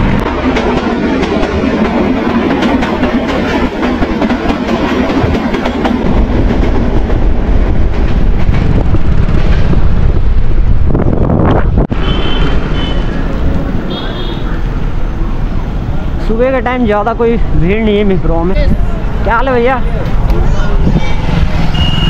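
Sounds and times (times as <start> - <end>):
train coaches clattering on rails: 0.0 - 10.4
wind rumble on microphone: 6.0 - 12.8, 20.1 - 22.0.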